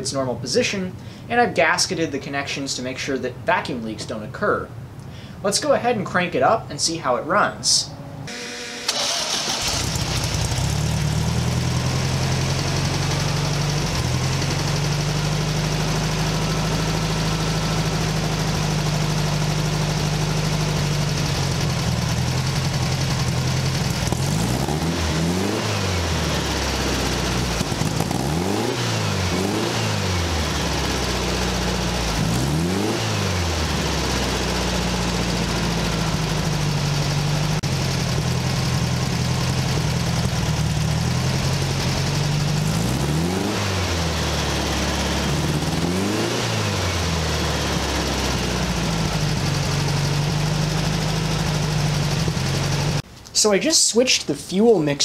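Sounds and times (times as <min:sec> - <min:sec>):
engine revving from throttle blips: 0:08.2 - 0:36.6, 0:39.2 - 0:53.0
car engine idling: 0:08.3 - 0:53.1.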